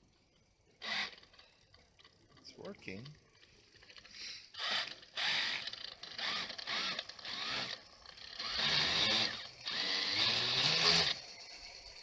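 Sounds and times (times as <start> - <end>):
electric motors whining: 0.8 - 1.5, 4.6 - 12.0.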